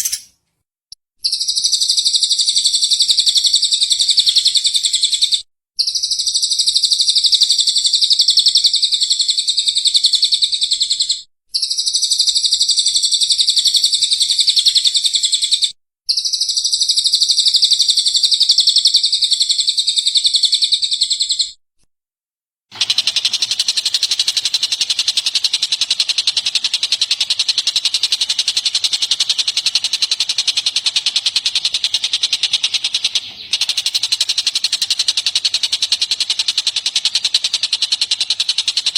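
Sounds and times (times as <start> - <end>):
bird buzzy pulsing call: 0.0 - 0.3
songbird chirping: 0.0 - 0.4.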